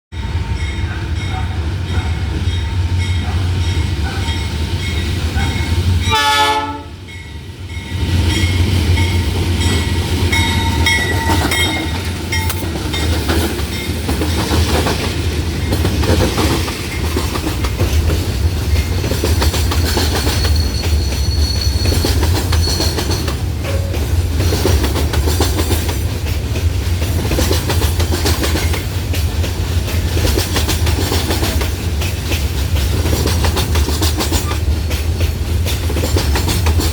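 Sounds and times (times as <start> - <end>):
diesel locomotive rumble: 0.2 - 36.9
train wheels clattering over rail joints: 8.2 - 36.9.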